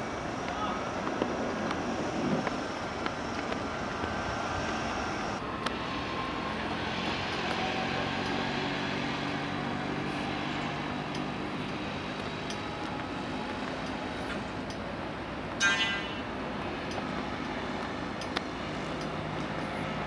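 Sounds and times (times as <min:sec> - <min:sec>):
jet engine drone: 0:00.0 - 0:06.8.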